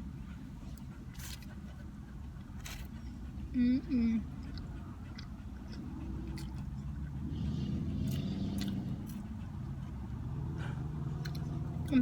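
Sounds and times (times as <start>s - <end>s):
close-up chewing: 0.2s - 12.0s
wet mouth clicks: 4.4s - 6.8s.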